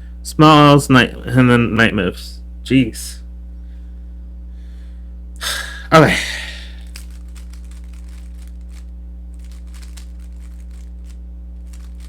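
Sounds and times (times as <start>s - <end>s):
electrical hum: 0.0s - 12.0s
rubik's cube clicking: 6.8s - 8.8s, 9.4s - 12.0s.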